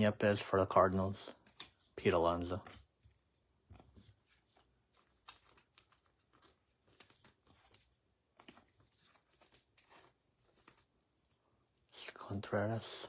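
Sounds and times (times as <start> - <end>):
trading cards rustling and clicking: 1.3 - 11.0.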